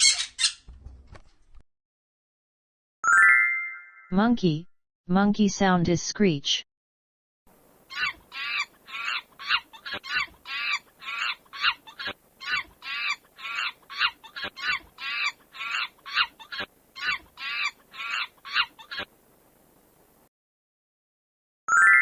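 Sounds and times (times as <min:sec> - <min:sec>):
monkey screeching: 0:00.0 - 0:00.7, 0:07.9 - 0:19.1.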